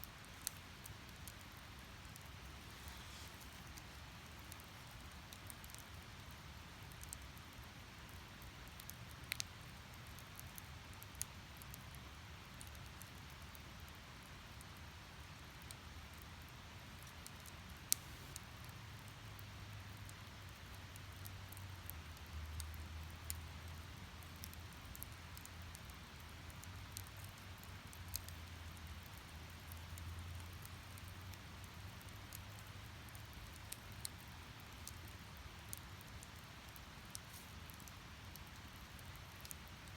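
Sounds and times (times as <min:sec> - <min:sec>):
firewood crackling and popping: 0:00.0 - 0:39.9
low rumble of flames: 0:00.0 - 0:39.9
hiss of flame: 0:02.5 - 0:04.6.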